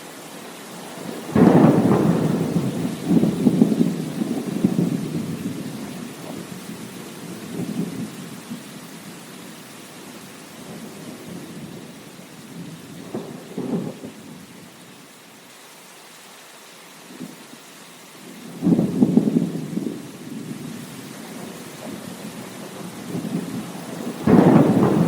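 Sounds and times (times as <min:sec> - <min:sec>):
steady rain: 0:00.0 - 0:25.0
thunder rumbling: 0:01.0 - 0:08.7, 0:10.6 - 0:14.5, 0:18.4 - 0:25.0.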